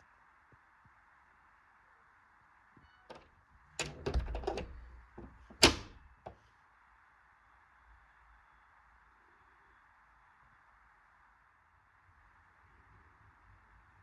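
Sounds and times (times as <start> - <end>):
sharp clicks and knocks: 3.8 - 6.3.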